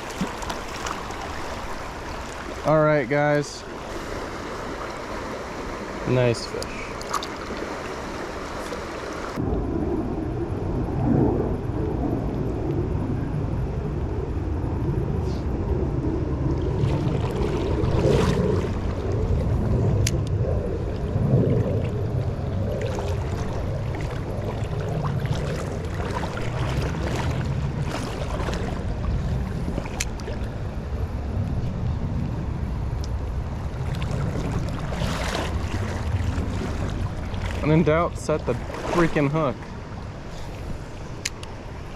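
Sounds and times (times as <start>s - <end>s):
river water flowing: 0.0s - 9.4s, 22.8s - 30.8s, 33.0s - 41.9s
low rumble on microphone: 8.0s - 41.2s.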